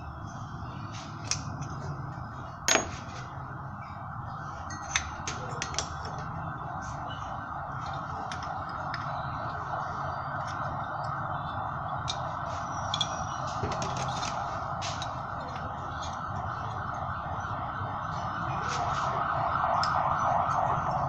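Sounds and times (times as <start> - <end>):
metal tools clinking: 2.7 - 3.3, 4.6 - 6.3, 12.0 - 16.2.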